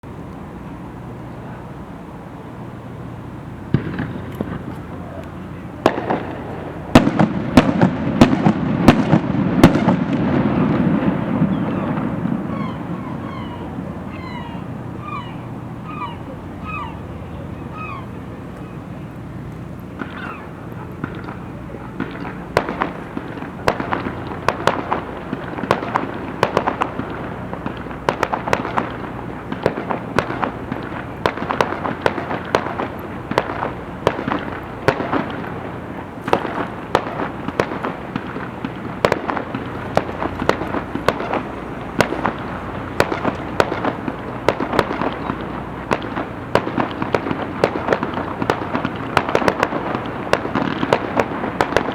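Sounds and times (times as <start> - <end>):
fireworks bangs and crackles: 2.9 - 16.5, 17.2 - 51.9.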